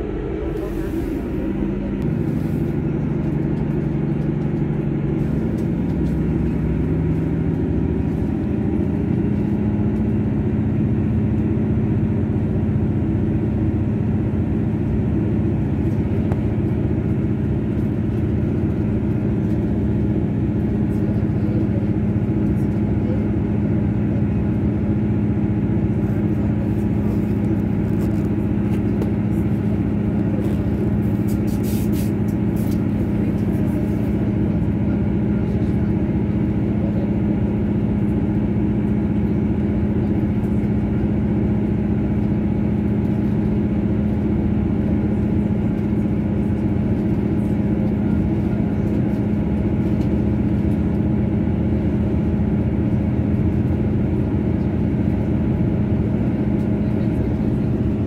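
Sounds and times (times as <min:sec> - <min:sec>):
train engine and wheels rumbling: 0:00.0 - 0:58.0.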